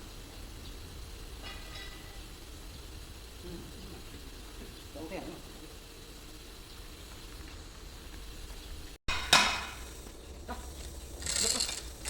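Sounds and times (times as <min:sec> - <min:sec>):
low background hum: 0:00.0 - 0:12.0
sharp metallic clank: 0:01.4 - 0:02.2, 0:09.1 - 0:10.0.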